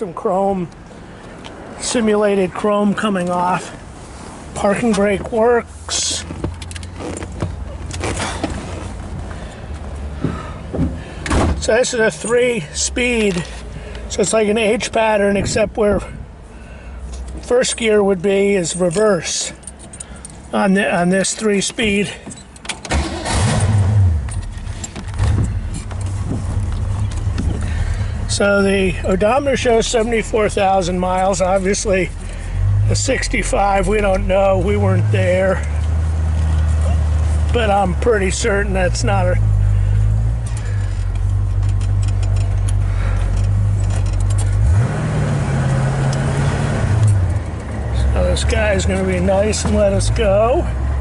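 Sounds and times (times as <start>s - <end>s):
keys jingling in ignition: 18.6s - 20.6s, 40.4s - 44.7s
car engine starting and idling: 21.2s - 51.0s.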